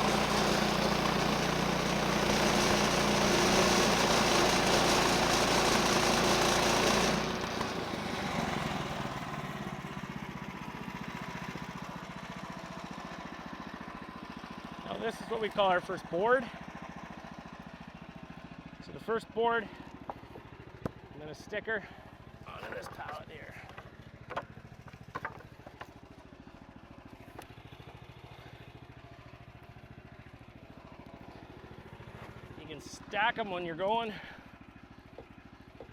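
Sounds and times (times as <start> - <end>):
sawmill engine running: 0.0 - 35.9
wooden boards knocking: 22.6 - 25.9.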